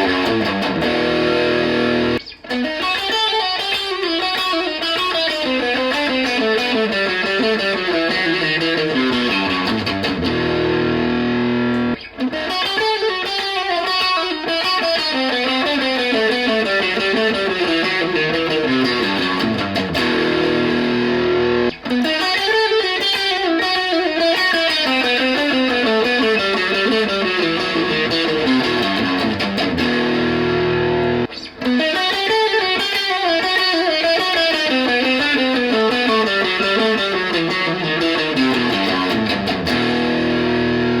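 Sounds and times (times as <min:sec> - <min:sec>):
electric guitar note runs: 0:00.0 - 0:02.3, 0:08.0 - 0:12.0, 0:17.6 - 0:21.8, 0:25.8 - 0:31.5, 0:36.2 - 0:41.0.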